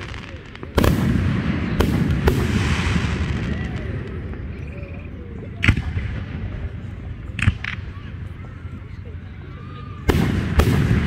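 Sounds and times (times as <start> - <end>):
fireworks bangs: 0.0 - 8.3, 10.0 - 11.0.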